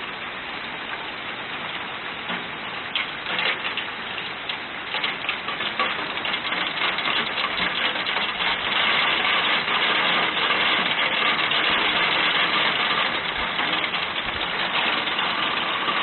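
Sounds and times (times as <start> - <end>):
hailstones clattering: 1.7 - 16.0.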